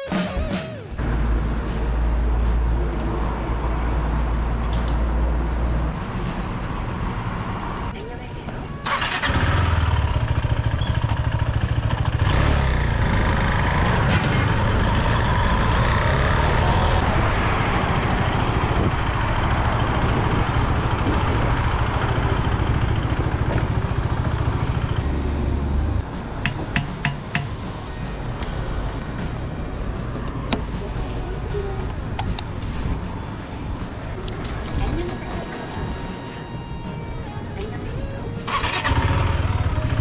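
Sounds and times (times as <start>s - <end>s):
motorcycle engine idling: 8.9s - 13.5s, 19.8s - 25.0s, 38.5s - 40.0s.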